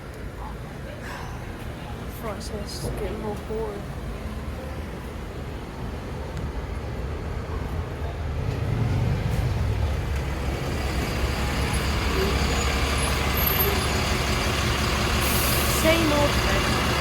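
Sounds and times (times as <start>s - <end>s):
bus engine rumbling: 0.0s - 17.0s.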